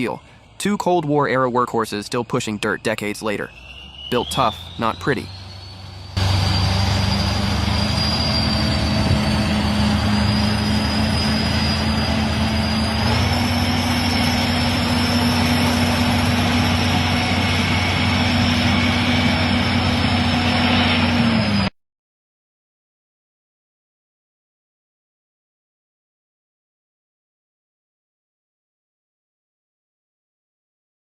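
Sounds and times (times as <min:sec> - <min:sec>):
high whine: 0:00.0 - 0:21.7
tractor diesel engine under load: 0:00.0 - 0:21.7.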